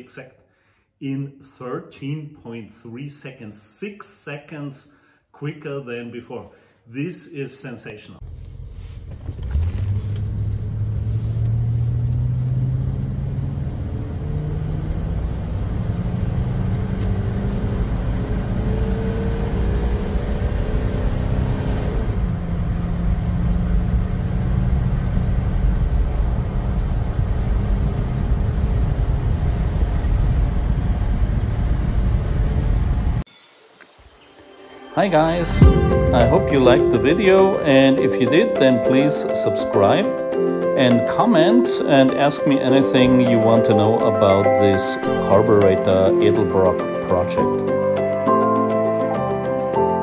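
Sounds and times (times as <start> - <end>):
car engine accelerating: 8.2 - 33.2
road rumble: 8.2 - 33.2.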